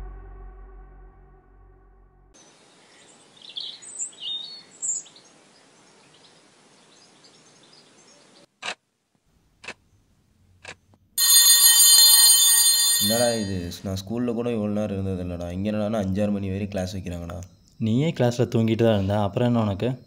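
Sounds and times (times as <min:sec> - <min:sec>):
music: 0:00.0 - 0:02.4
birds chirping: 0:02.4 - 0:08.5
electric bell ringing: 0:11.2 - 0:13.8.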